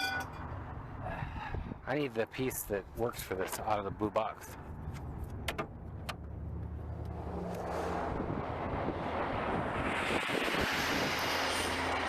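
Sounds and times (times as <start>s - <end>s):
wind on microphone: 8.0s - 11.5s.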